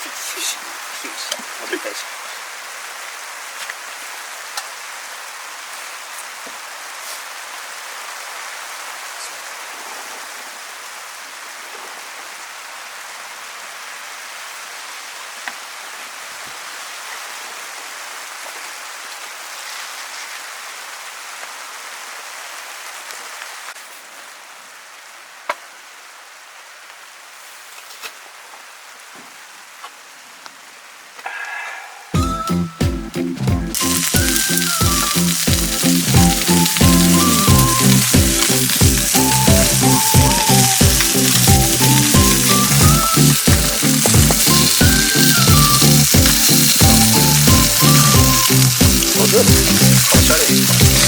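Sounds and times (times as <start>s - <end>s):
meat sizzling over fire: 0.0s - 13.2s, 14.0s - 23.9s, 32.1s - 51.0s
sharp pops from fire: 33.7s - 51.0s.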